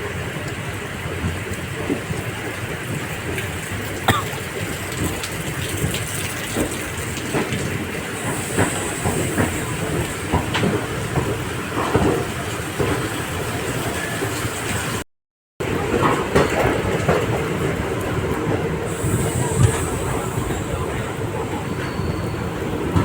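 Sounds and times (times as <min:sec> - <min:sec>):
train wheels rumbling on rail: 0:00.0 - 0:15.0, 0:15.6 - 0:23.0
wheels clicking over rail joints: 0:04.6 - 0:15.0.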